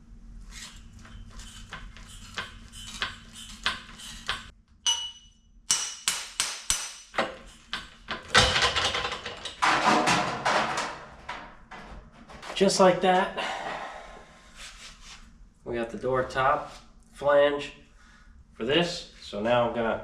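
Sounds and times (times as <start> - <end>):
hammer tapping on sheet steel: 2.3 - 8.2
metal clatter: 7.1 - 12.6.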